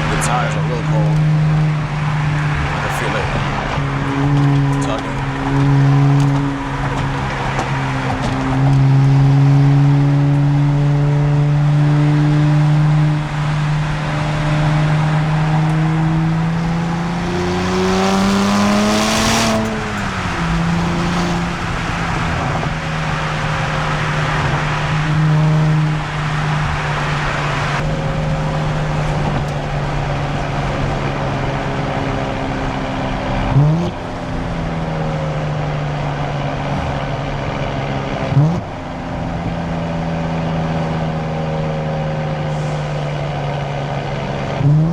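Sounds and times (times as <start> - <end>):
engine rev blips: 0.0 - 37.4
car exhaust drone: 0.0 - 44.9.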